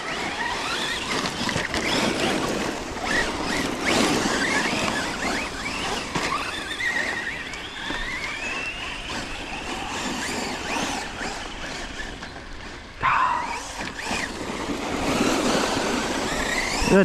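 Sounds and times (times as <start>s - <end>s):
rc truck electric motors whining: 0.0s - 17.0s.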